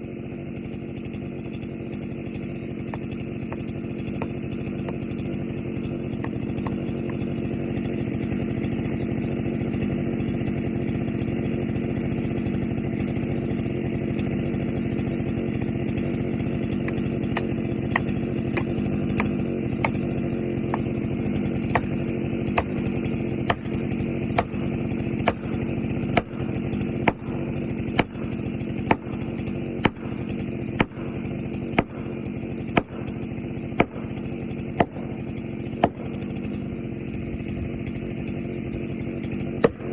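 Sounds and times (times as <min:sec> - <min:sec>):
chainsaw engine running: 0:00.0 - 0:39.9.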